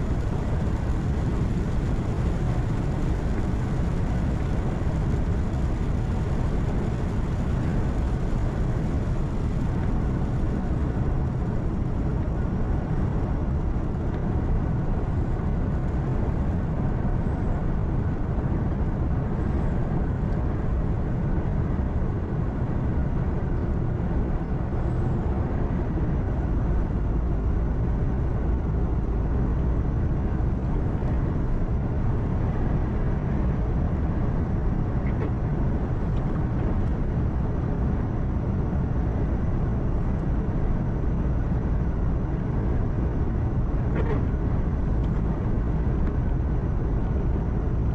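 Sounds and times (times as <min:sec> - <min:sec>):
tyre and road noise: 0:00.0 - 0:47.9.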